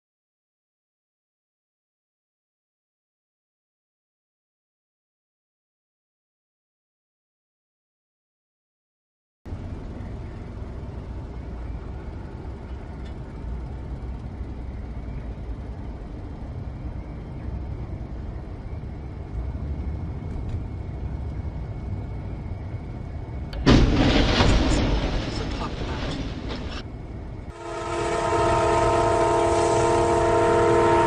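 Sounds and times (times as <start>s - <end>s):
road vehicle rumble: 9.5s - 31.0s.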